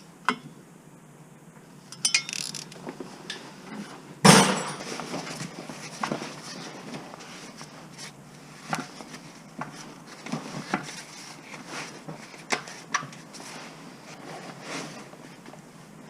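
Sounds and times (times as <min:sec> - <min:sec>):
tools knocking and clinking: 0:01.9 - 0:02.7, 0:04.3 - 0:04.9.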